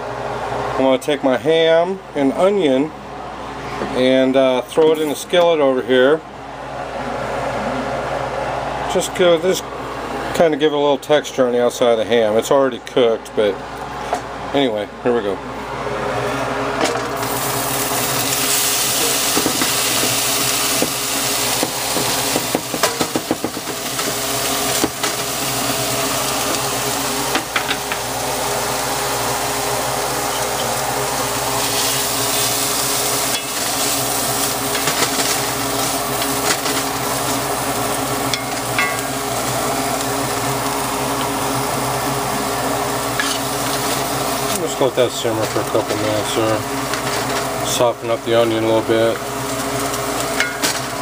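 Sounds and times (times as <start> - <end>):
ham and onion sizzling in skillet: 17.2 - 44.6.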